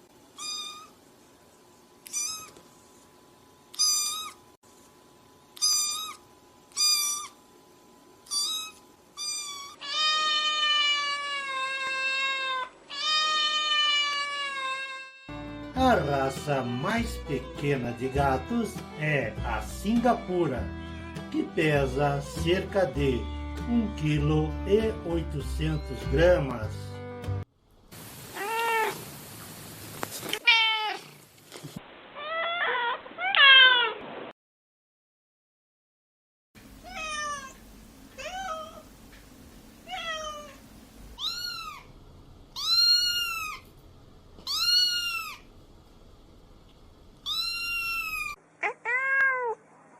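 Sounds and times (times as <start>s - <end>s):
kitten meowing: 0.4s - 0.9s, 2.0s - 2.6s, 3.7s - 4.4s, 5.6s - 7.4s, 8.3s - 15.3s, 36.8s - 37.6s, 38.2s - 38.8s, 39.9s - 40.6s, 41.2s - 41.9s, 42.6s - 43.7s, 44.4s - 45.5s, 47.2s - 49.6s.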